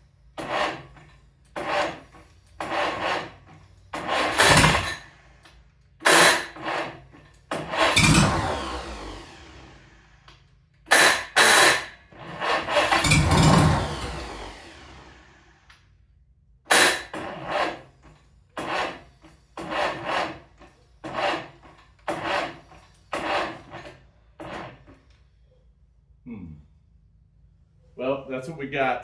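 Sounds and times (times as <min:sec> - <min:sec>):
tractor engine revving: 0:00.4 - 0:01.0, 0:01.6 - 0:10.2, 0:10.9 - 0:15.7, 0:16.7 - 0:25.0.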